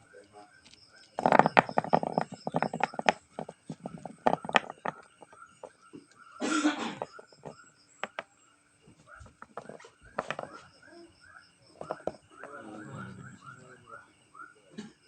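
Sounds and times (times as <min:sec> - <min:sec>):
person coughing: 0:06.4 - 0:07.2.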